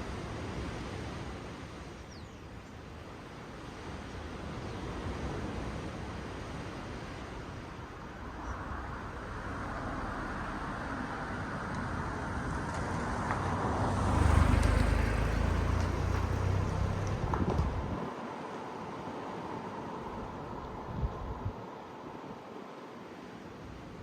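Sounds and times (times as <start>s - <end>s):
sea waves rushing: 0.0s - 2.1s, 2.8s - 24.0s
deep surf rumble: 7.5s - 18.1s.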